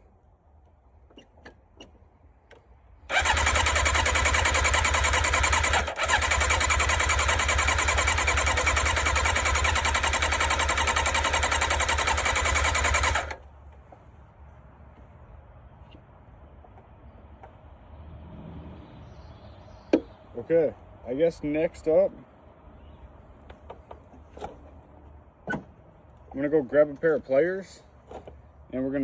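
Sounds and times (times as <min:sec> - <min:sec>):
motorcycle starter cranking: 0:03.1 - 0:13.4.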